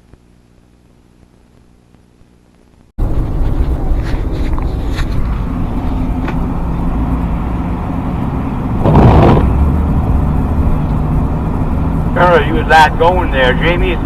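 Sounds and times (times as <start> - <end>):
diesel engine drone: 3.0 - 14.0
road noise inside cab: 3.0 - 14.0
rush of noise: 3.0 - 14.0.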